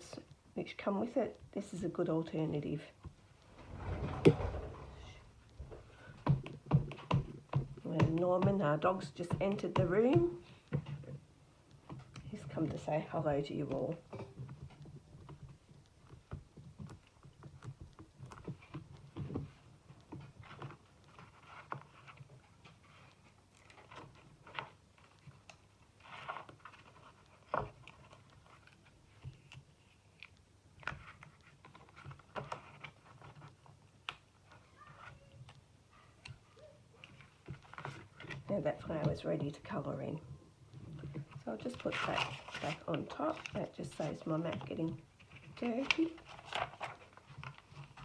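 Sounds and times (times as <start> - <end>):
paper rustling and scraping: 3.4 - 5.8, 41.2 - 48.0.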